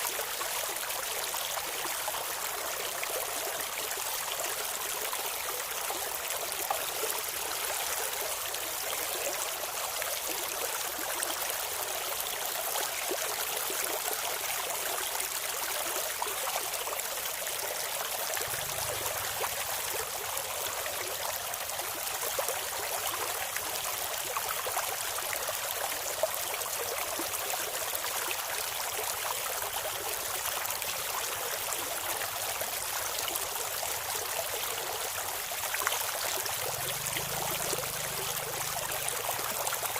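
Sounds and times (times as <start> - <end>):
stream water babbling over stones: 0.0 - 39.9.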